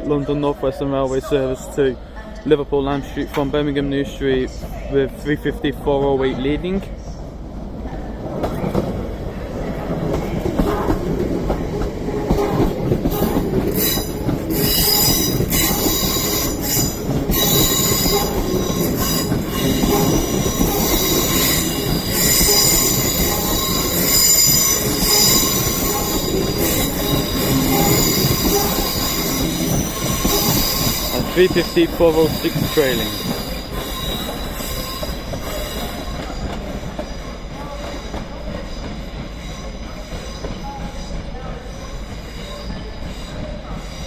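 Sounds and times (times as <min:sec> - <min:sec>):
train wheels rumbling and clicking: 0:03.2 - 0:44.0
train wheels squealing: 0:12.4 - 0:44.0.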